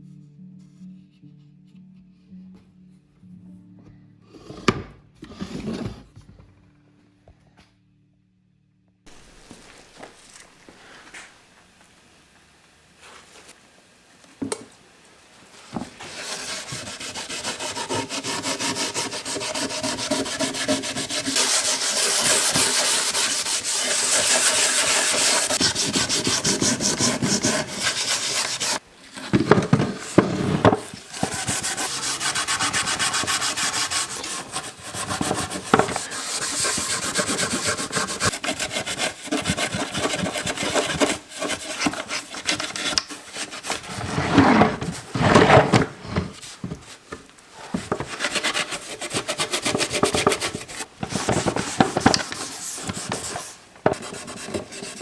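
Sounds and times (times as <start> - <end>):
hand rubbing wooden box: 15.8 - 55.0.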